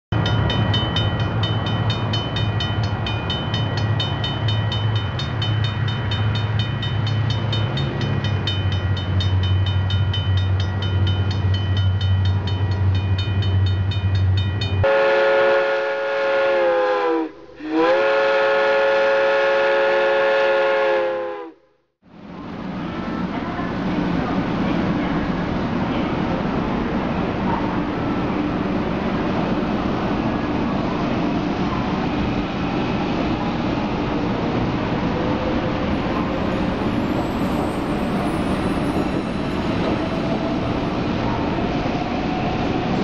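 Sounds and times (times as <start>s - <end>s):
train running with low hum: 0.1s - 43.0s
train horn blasts: 14.8s - 21.8s.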